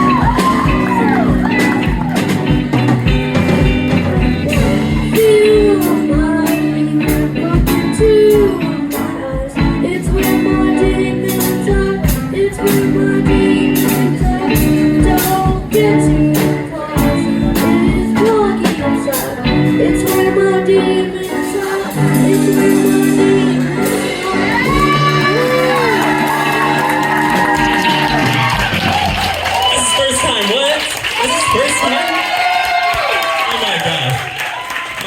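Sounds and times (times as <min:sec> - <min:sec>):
steady drumbeat: 0:00.0 - 0:20.4, 0:21.9 - 0:33.4
bass: 0:00.0 - 0:34.4
guitar: 0:00.0 - 0:35.0
person singing: 0:04.4 - 0:28.5.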